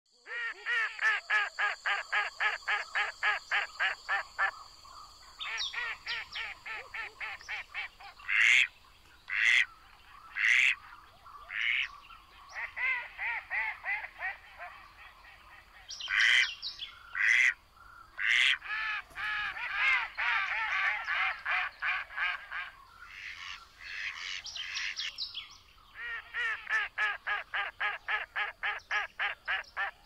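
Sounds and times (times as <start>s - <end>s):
harsh bird calls: 0.3s - 30.0s.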